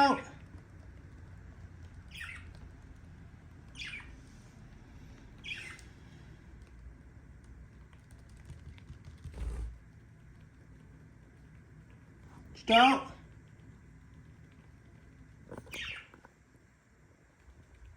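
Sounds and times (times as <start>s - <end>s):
budgerigar chirping: 2.1s - 2.5s, 3.7s - 4.2s, 5.4s - 5.8s, 15.7s - 16.1s.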